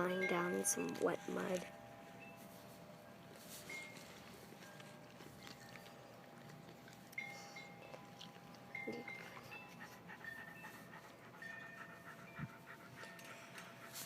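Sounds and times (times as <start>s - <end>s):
dog panting: 3.6s - 14.0s.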